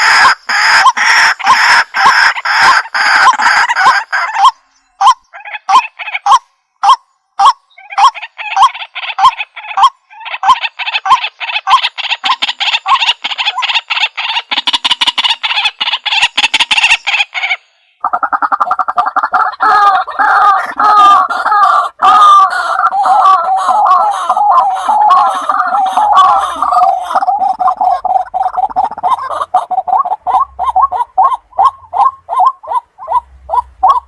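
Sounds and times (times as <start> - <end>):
waterhen warbling call: 0.0 - 34.0
waterhen repeated notes: 14.5 - 34.0.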